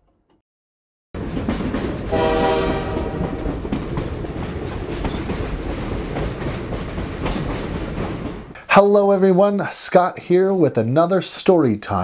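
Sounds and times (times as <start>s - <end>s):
train rumbling on rails: 1.2s - 8.6s
train whistle blast: 2.1s - 3.4s.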